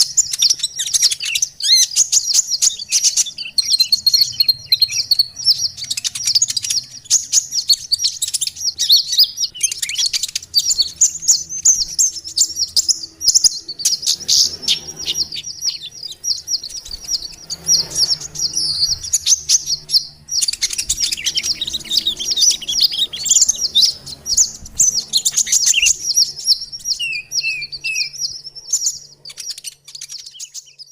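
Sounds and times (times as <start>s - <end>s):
falling bird notes: 0.0s - 30.6s
birds chattering and trilling: 0.0s - 30.9s.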